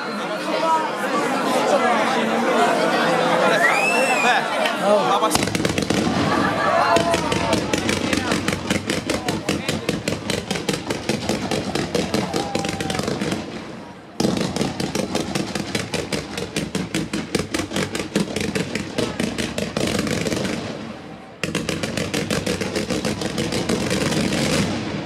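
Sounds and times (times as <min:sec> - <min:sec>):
fireworks bangs: 0:05.3 - 0:25.0.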